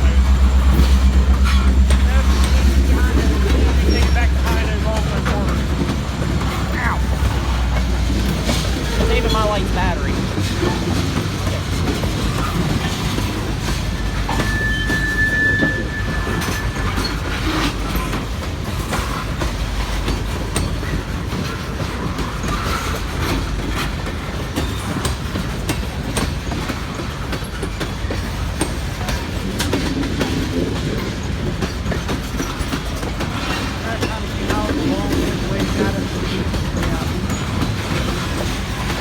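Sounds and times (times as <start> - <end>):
high squeal: 0.0 - 4.8, 13.9 - 17.7
freight train cars rumbling: 0.0 - 39.0
wheels clicking over rail joints: 0.0 - 39.0.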